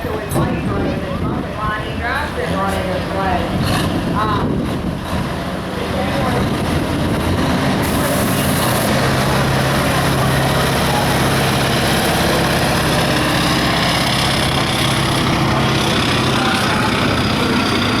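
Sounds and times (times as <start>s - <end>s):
truck engine running loudly: 0.0s - 18.0s.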